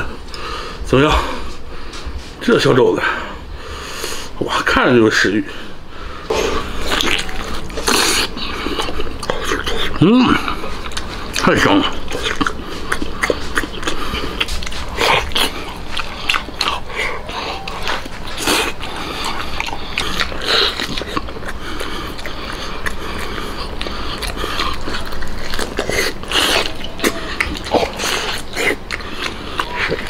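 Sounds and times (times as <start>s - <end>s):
wet chewing and smacking: 6.3s - 30.0s.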